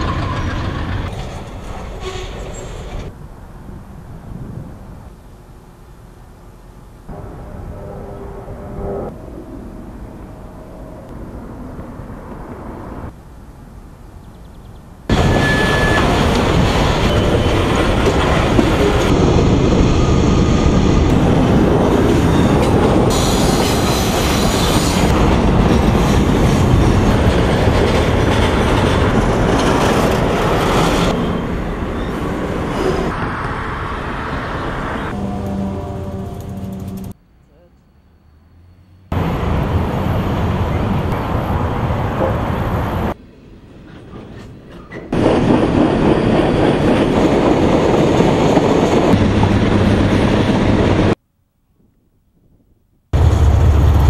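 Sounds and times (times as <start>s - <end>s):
freight train rumbling past: 0.0s - 5.2s, 7.1s - 13.2s, 15.1s - 37.2s, 38.6s - 51.2s, 53.1s - 54.0s
wheel squeal: 15.1s - 17.7s.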